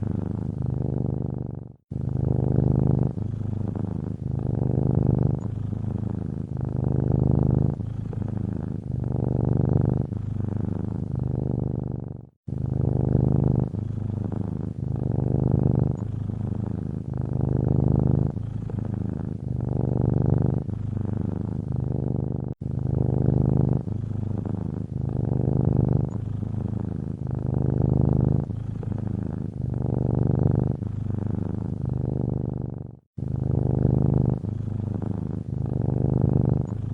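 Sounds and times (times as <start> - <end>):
cat purring: 0.0 - 36.9.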